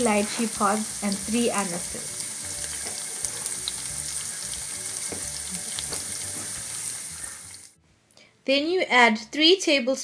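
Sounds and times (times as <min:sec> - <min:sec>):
onion sizzling in hot oil: 0:00.0 - 0:07.8.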